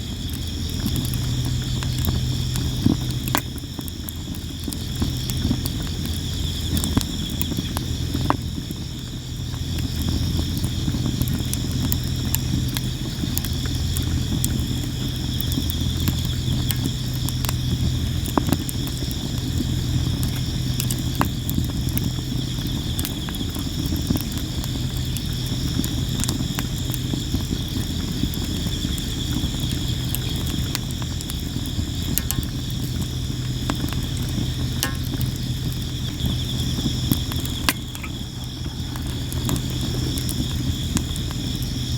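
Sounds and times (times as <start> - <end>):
campfire crackling and popping: 0.0 - 41.9
crickets chirping: 0.0 - 41.9
low steady hum: 0.0 - 41.9.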